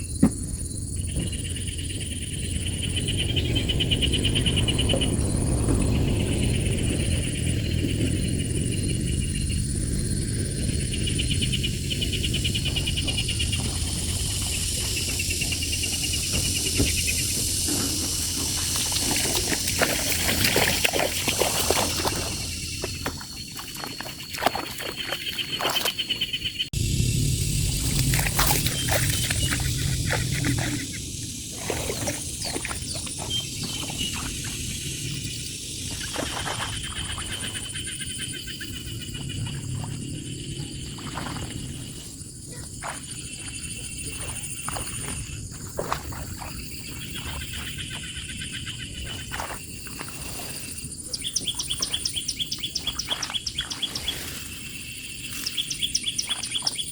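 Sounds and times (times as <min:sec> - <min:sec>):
steady low rumble: 0:00.0 - 0:20.0, 0:26.6 - 0:36.0, 0:36.6 - 0:47.2
insect pulsed trills: 0:00.0 - 0:56.9
insect high buzz: 0:07.3 - 0:23.8, 0:26.2 - 0:56.9
low rumble: 0:26.7 - 0:36.0.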